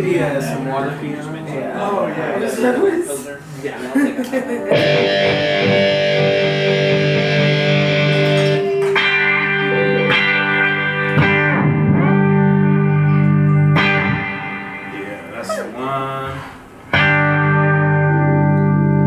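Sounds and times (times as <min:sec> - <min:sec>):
electric guitar strumming chords: 0:04.7 - 0:15.3, 0:16.8 - 0:19.0.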